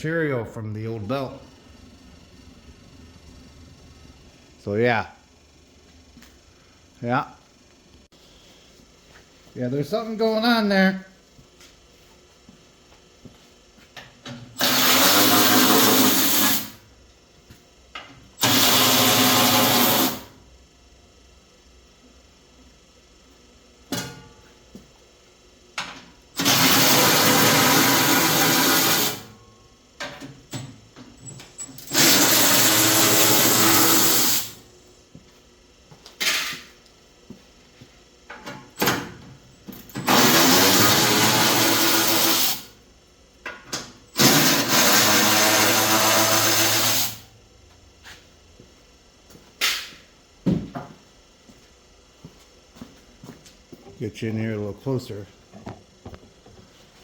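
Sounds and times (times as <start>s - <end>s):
power drill running: 14.6s - 16.6s, 18.4s - 20.3s, 26.4s - 29.3s, 31.7s - 34.6s, 39.9s - 42.7s, 44.1s - 47.3s.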